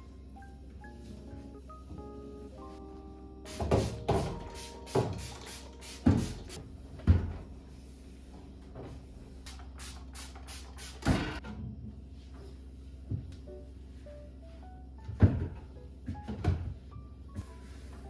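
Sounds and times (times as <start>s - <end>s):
cupboard doors shutting: 3.5s - 5.3s.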